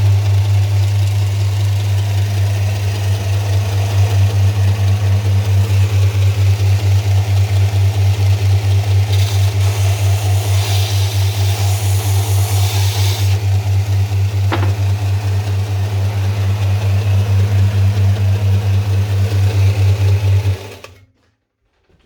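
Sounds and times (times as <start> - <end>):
sanding machine motor humming: 0.0 - 20.9
motor winding down: 0.0 - 21.0
hiss: 9.2 - 13.4.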